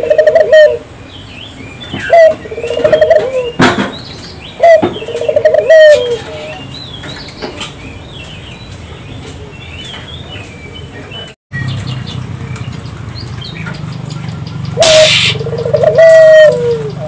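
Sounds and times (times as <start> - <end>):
dove cooing: 0.0 - 0.9, 2.0 - 3.6, 4.6 - 6.6, 14.8 - 17.0
small birds chirping: 1.0 - 17.0
loud harsh burst: 14.8 - 15.4.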